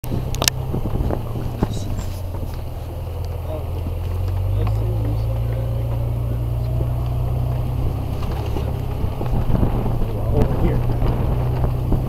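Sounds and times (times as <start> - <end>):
car engine and road rumble: 0.0 - 12.0
faint rattles: 0.0 - 12.0.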